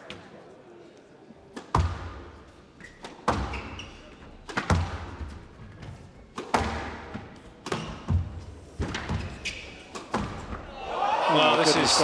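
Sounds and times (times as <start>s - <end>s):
squash ball hitting rackets and walls: 1.6s - 10.8s
shoe squeaks: 2.8s - 4.2s, 9.2s - 10.0s.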